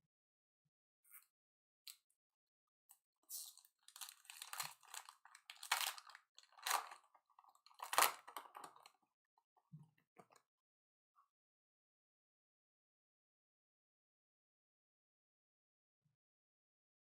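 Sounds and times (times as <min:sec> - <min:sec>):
foil wrapper crinkling and tearing: 0:03.4 - 0:08.9.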